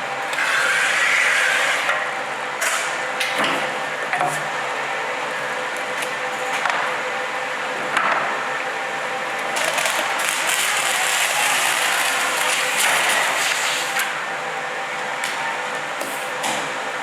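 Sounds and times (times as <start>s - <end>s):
roll laminator running: 0.0s - 17.0s.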